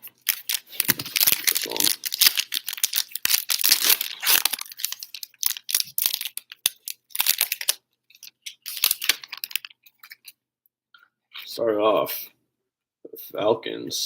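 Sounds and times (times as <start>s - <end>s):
wrapper tearing and crinkling: 0.0s - 10.3s.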